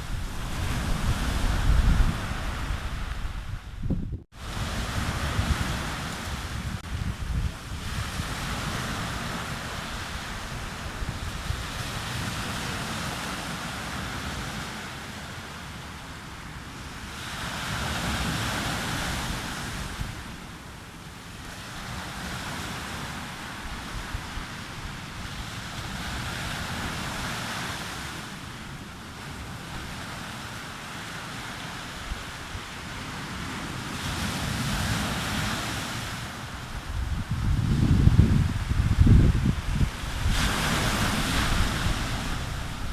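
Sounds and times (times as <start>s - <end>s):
wind rumbling on microphone: 0.0s - 14.6s, 31.7s - 42.9s
sea waves breaking on beach: 0.0s - 42.9s.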